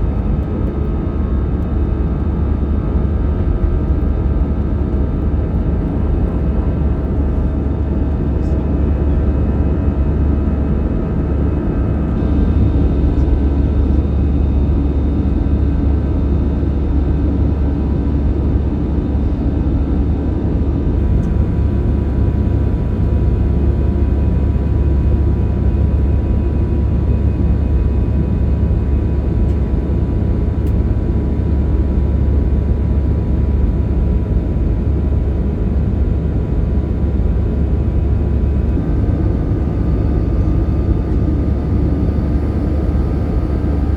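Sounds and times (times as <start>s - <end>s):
jet engine drone in cabin: 0.0s - 43.9s.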